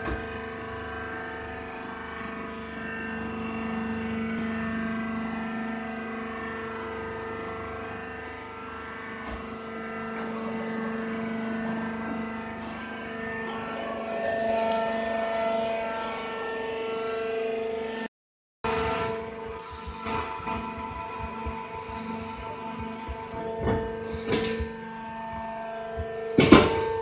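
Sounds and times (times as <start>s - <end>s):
baling machine droning: 0.0s - 27.0s.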